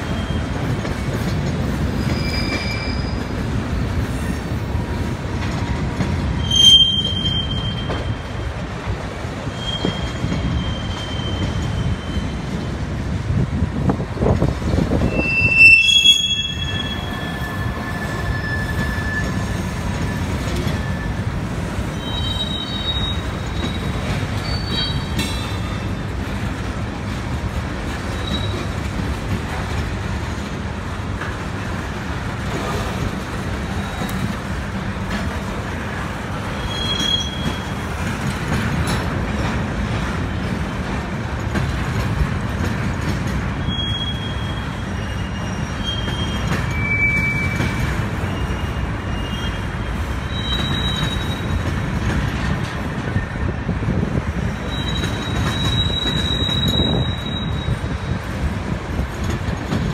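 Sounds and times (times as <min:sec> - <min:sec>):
high wheel squeals: 0:00.0 - 0:00.6, 0:01.9 - 0:03.4, 0:06.3 - 0:08.3, 0:09.4 - 0:12.7, 0:15.0 - 0:26.0, 0:28.0 - 0:28.8, 0:36.3 - 0:38.0, 0:43.6 - 0:51.8, 0:54.5 - 0:58.2
freight train rumbling on rails: 0:00.0 - 0:59.9.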